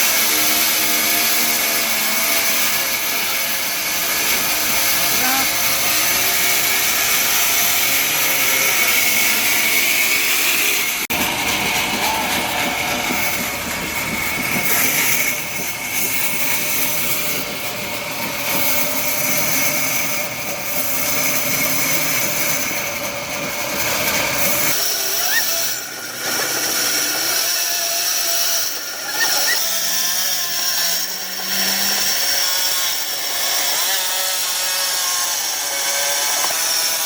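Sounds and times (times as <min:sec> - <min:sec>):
sawmill saw whine: 0:00.0 - 0:37.0.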